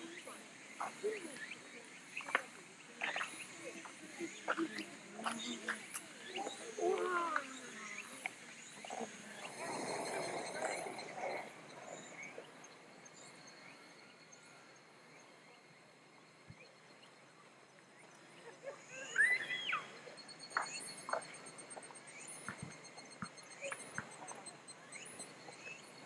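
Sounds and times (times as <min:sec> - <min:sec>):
insects trilling: 0:00.0 - 0:14.9.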